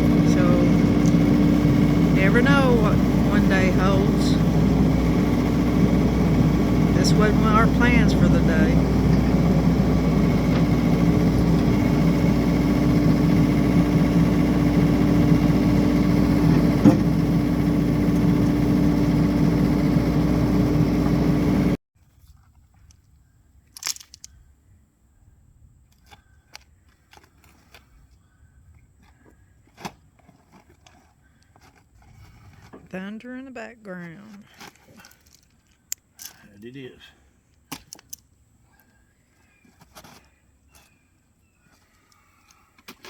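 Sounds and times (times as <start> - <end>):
excavator engine under load: 0.0 - 21.8.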